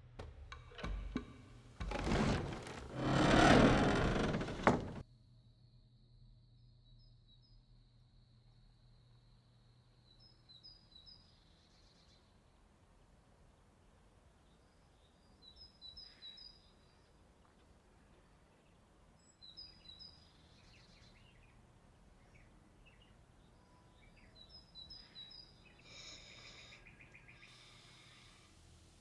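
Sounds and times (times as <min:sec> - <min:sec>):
faint bird chirps: 0:14.3 - 0:28.5.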